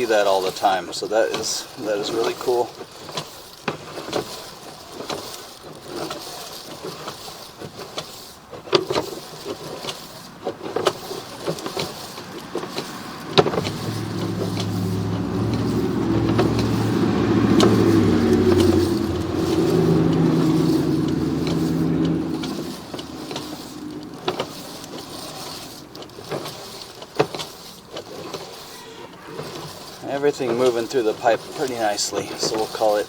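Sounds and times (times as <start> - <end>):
sharp clicks and knocks: 0.1 - 33.0
engine-like drone: 10.4 - 33.0.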